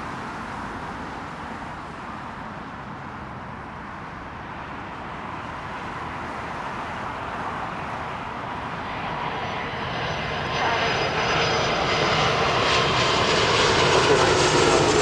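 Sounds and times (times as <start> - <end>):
jet engine rumble: 7.8 - 15.0.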